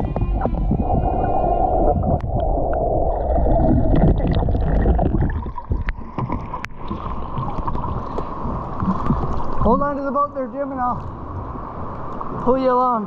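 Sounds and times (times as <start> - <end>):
low rumble on microphone: 0.0 - 10.0
river water splashing: 0.0 - 13.0.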